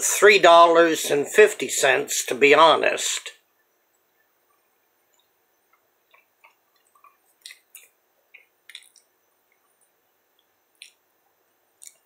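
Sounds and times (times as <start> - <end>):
person chewing: 6.1 - 9.7, 11.8 - 12.0.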